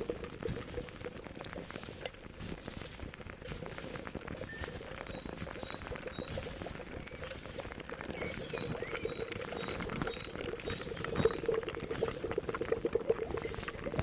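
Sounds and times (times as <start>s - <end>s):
pot of liquid boiling: 0.0s - 14.0s
faint bird chirps: 3.8s - 11.6s.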